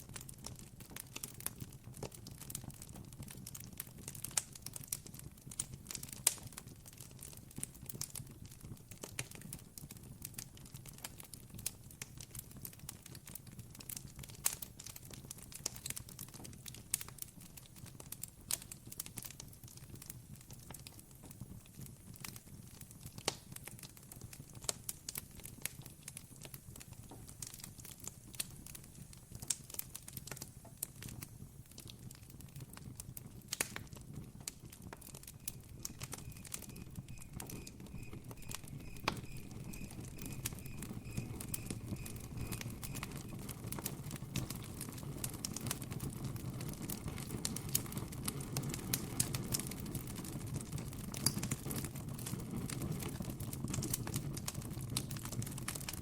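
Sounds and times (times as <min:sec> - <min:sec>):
campfire crackling: 0:00.0 - 0:56.0
faint high chirps: 0:35.2 - 0:43.4.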